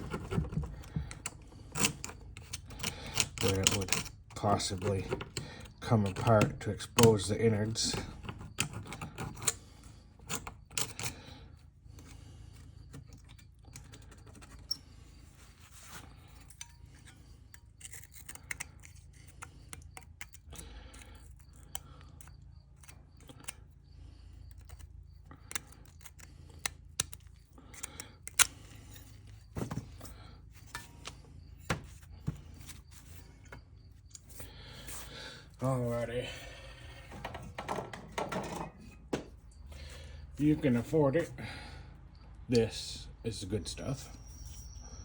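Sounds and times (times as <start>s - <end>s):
hand tool scraping metal: 0.0s - 11.2s, 27.7s - 39.3s.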